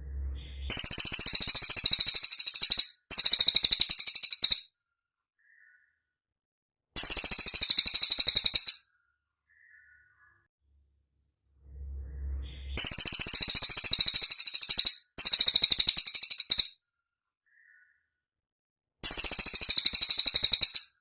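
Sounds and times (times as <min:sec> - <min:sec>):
bird singing high trills: 0:00.0 - 0:04.7, 0:07.0 - 0:08.8, 0:11.9 - 0:16.8, 0:19.0 - 0:21.0.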